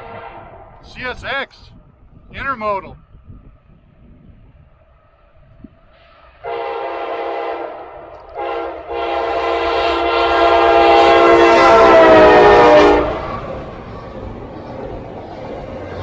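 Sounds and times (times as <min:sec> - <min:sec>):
locomotive air horn blasts: 0:00.0 - 0:00.7, 0:06.4 - 0:13.5
train rumble: 0:00.0 - 0:16.0.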